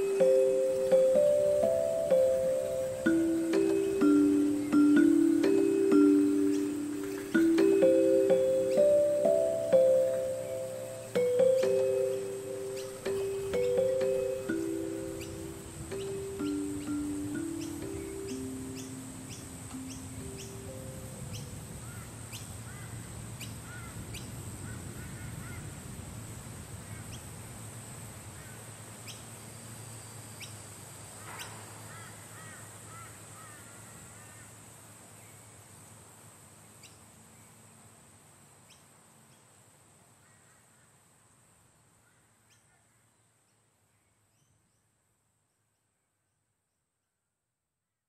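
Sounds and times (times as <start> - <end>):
bird chirps and calls: 0.0 - 24.3
steady background noise: 0.0 - 40.2.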